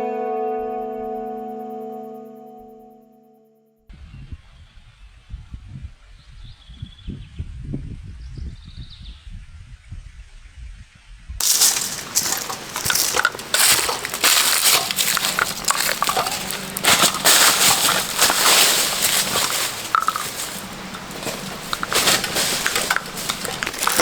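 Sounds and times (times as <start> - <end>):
dense crunching and crackling: 11.4 - 24.0.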